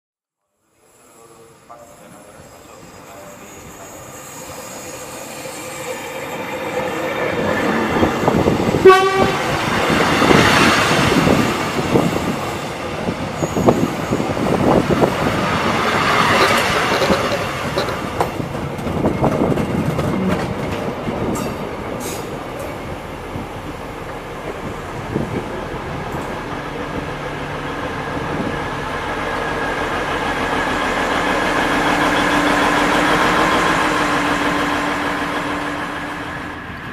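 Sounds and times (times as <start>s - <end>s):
train engine drone: 0.4s - 36.9s
train rumble passing: 2.8s - 36.9s
train horn blast: 8.7s - 9.7s.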